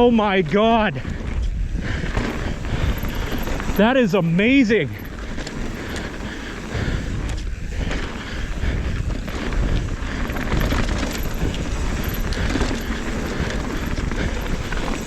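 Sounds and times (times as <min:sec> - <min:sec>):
bike rattling over bumps: 0:00.0 - 0:15.0
bike tyres over dirt and rock: 0:00.0 - 0:15.0
wind rumble on microphone: 0:00.0 - 0:15.0.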